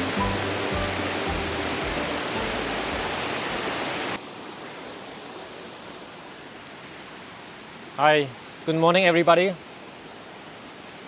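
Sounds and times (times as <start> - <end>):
background music: 0.0 - 3.7
river rushing: 0.0 - 11.0.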